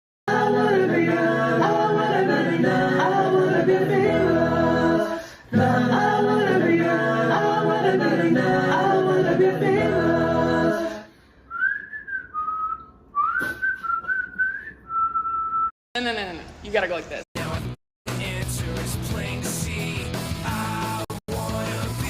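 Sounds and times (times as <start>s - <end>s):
a cappella choir singing: 0.3s - 11.2s.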